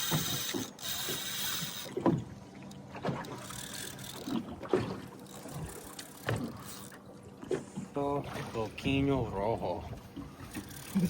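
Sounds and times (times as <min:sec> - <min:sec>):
water slapping against boat hull: 0:01.9 - 0:03.4, 0:04.2 - 0:06.6.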